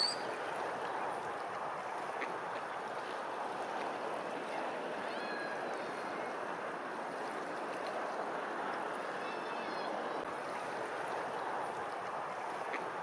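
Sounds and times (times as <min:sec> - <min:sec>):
bird calling: 0:00.0 - 0:00.2.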